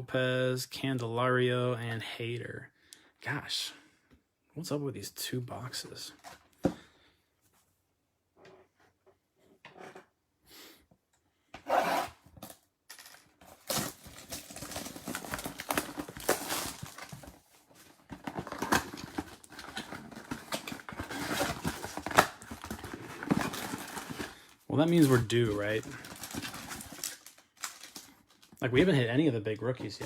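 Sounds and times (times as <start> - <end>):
foil wrappers rustling and tearing: 13.5 - 28.6.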